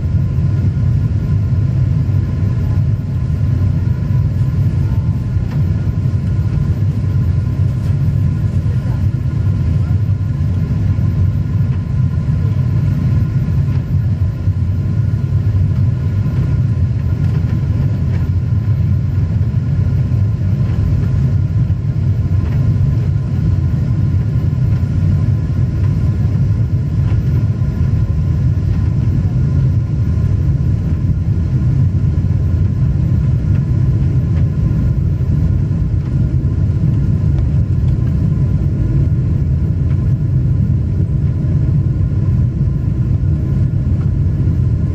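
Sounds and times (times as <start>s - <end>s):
faint whining tones: 0.0s - 44.9s
jet engine and airflow rumble: 0.0s - 44.9s.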